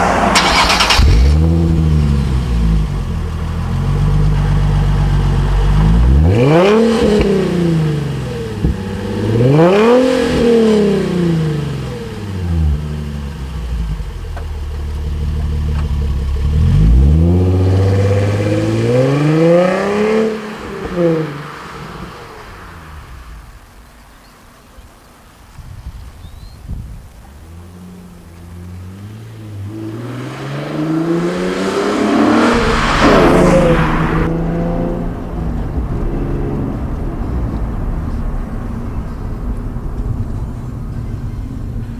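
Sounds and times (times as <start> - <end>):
car engine idling and revving: 0.0 - 24.3, 27.0 - 41.9.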